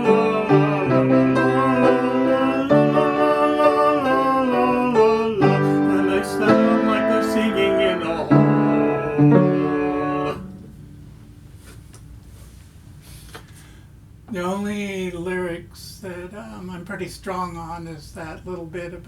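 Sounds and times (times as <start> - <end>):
man singing la la: 0.0 - 10.4
instrument accompaniment: 0.0 - 10.8.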